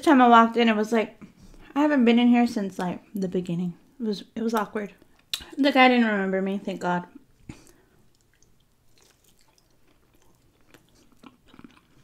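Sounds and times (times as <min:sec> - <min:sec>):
person chewing meat: 0:07.5 - 0:12.0.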